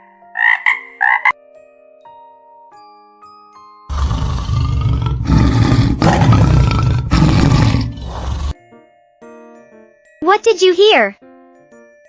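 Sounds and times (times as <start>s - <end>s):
tiger roaring: 3.9s - 8.6s.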